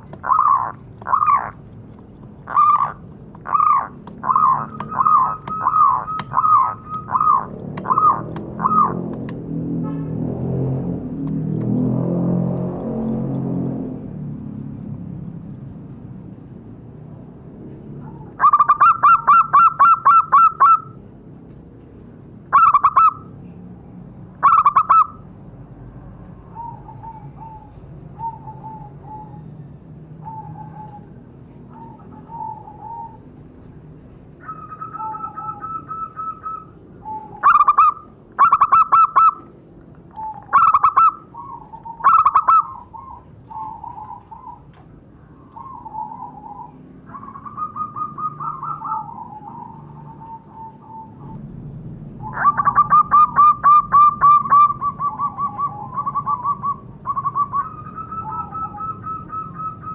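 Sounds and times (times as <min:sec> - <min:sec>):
doves cooing: 0:00.0 - 0:01.7, 0:02.3 - 0:09.6, 0:18.0 - 0:21.0, 0:26.5 - 0:33.4, 0:34.4 - 0:51.6, 0:52.2 - 0:59.9.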